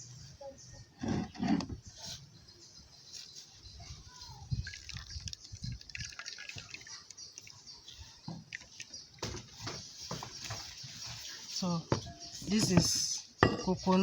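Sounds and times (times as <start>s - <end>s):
liquid dripping through sieve: 4.5s - 9.6s.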